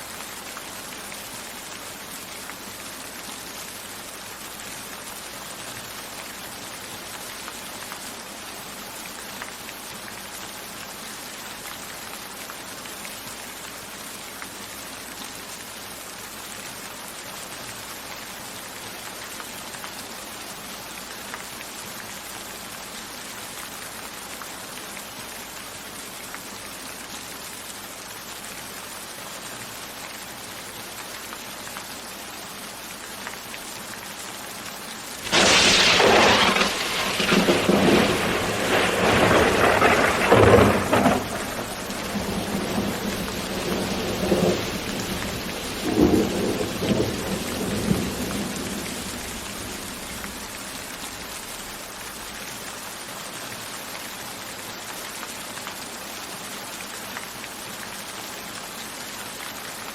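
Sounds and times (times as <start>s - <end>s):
steady rain falling: 0.0s - 59.9s
thunderclap rumbling: 35.2s - 50.5s.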